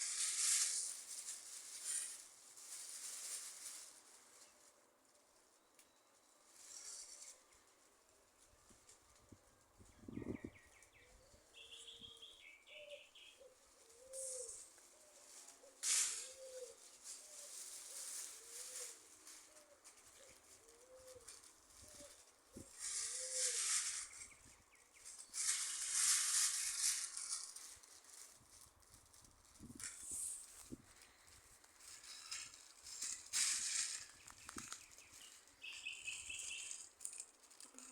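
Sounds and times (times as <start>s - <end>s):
hissy rustling noise: 0.0s - 5.6s, 11.6s - 37.9s
dove cooing: 12.7s - 17.6s, 18.4s - 23.7s.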